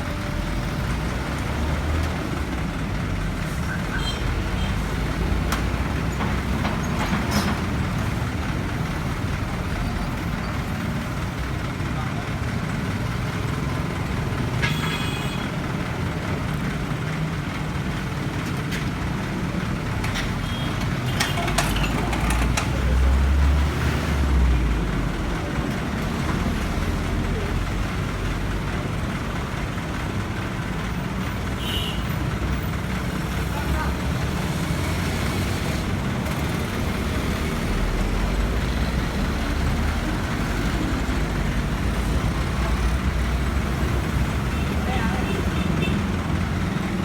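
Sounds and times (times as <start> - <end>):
heavy machinery engine running: 0.0 - 31.5, 32.2 - 47.0
knocks and clanks: 5.5 - 7.9, 20.0 - 23.0
people talking: 33.4 - 34.2, 44.5 - 46.0.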